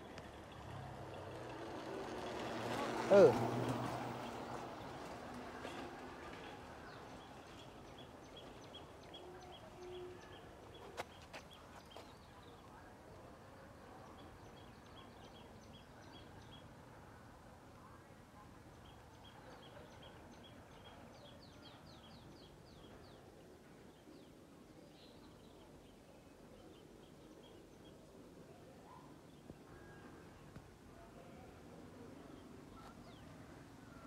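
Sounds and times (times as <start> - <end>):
garden background noise: 0.0 - 34.0.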